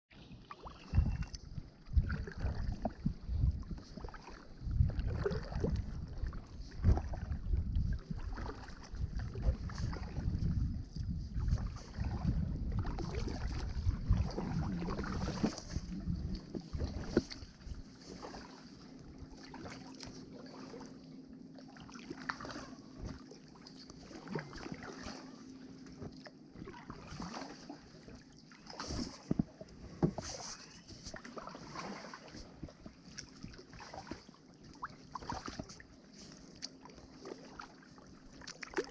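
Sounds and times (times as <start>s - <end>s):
paddle strokes splashing: 0.1s - 38.9s
faint steady hum: 0.2s - 31.6s
wind buffeting microphone: 0.9s - 17.8s.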